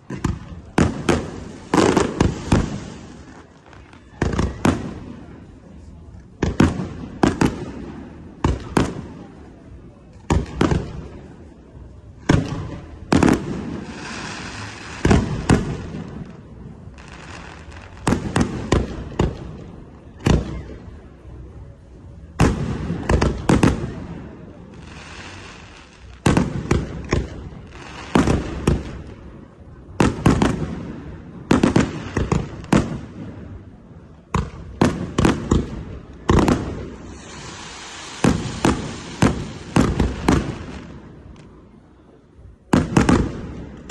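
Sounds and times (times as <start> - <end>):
crackling and fizzing firework trails: 0.0 - 43.9.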